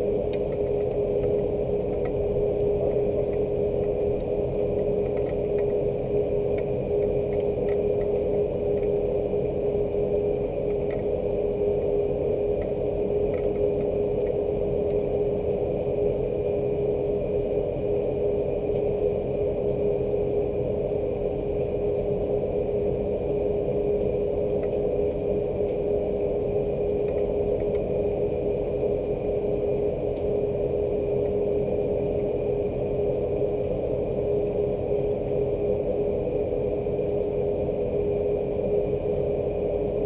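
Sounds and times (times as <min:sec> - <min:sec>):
steady mechanical hum: 0:00.0 - 0:40.0.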